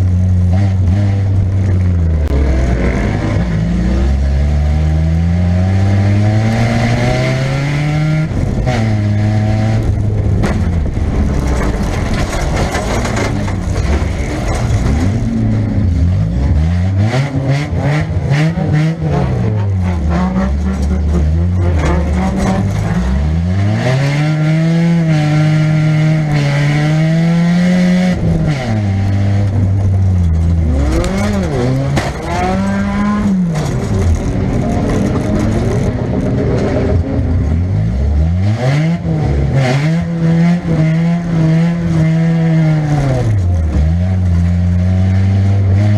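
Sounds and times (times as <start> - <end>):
car engine revving: 0.0 - 45.9
knocks and metal clatter: 9.9 - 15.9, 19.6 - 23.3, 29.6 - 37.0.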